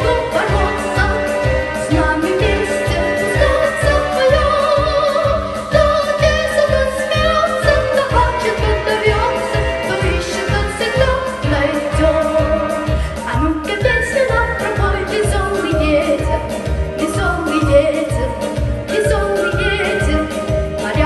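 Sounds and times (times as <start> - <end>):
girl singing: 0.0 - 16.4
instrumental accompaniment with beat: 0.0 - 21.0.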